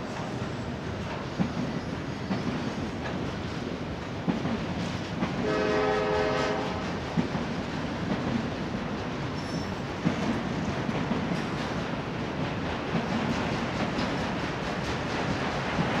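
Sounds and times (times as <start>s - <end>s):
wheels rumbling on rail: 0.0s - 16.0s
train horn: 5.4s - 7.1s.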